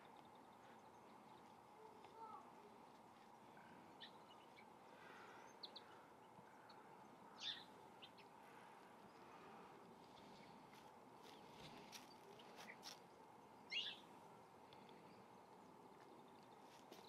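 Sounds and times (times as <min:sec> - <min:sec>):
high bird chirps: 0:13.7 - 0:14.1.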